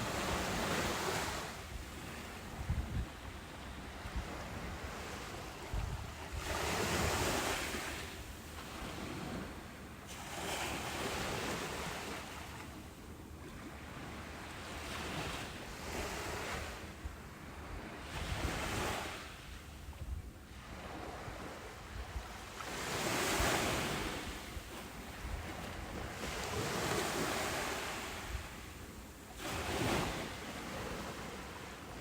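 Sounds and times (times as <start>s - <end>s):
ocean surf breaking on beach: 0.0s - 2.6s, 20.7s - 32.0s
wind rumble on microphone: 0.0s - 32.0s.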